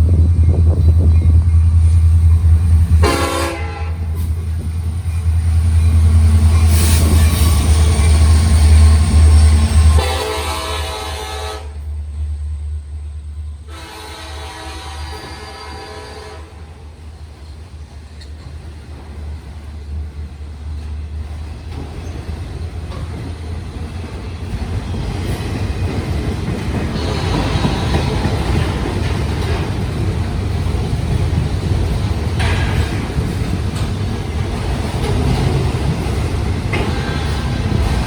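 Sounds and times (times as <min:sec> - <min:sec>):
locomotive rumble: 0:00.0 - 0:38.0
locomotive air horn: 0:03.0 - 0:04.3, 0:09.9 - 0:11.9, 0:13.6 - 0:16.8, 0:27.0 - 0:28.8, 0:36.8 - 0:38.0.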